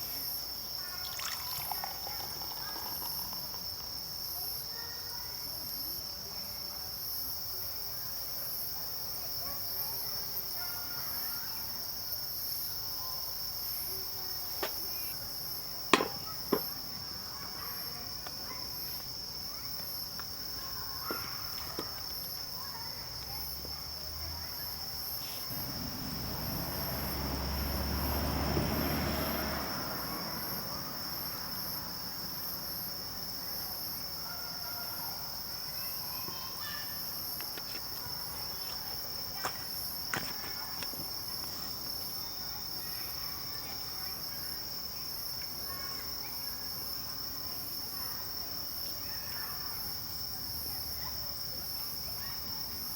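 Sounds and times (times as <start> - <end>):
crickets and insects trilling: 0.0 - 52.9
sharp knocks: 15.9 - 16.7.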